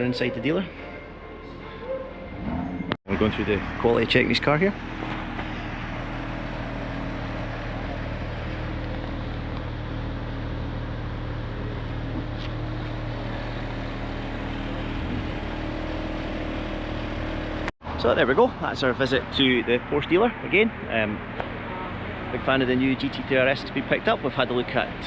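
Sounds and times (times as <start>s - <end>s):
car engine idling: 2.4s - 17.7s.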